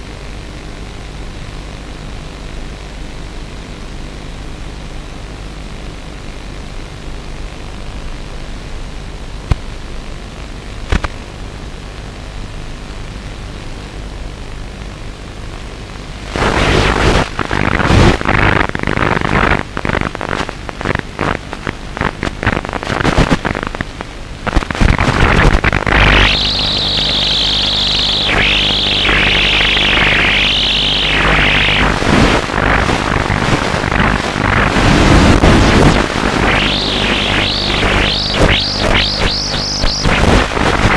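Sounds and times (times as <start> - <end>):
electric motor whining: 25.9 - 33.2.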